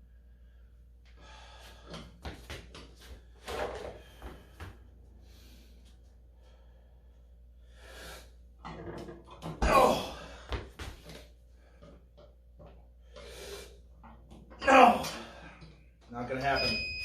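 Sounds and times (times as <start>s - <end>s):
man breathing hard and straining: 0.0s - 2.2s, 3.8s - 8.6s
man grunting: 9.6s - 10.4s, 14.6s - 15.4s.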